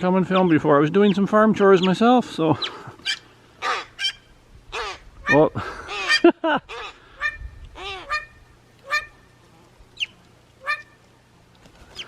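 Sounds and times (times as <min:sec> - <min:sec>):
crows cawing: 0:02.6 - 0:09.2.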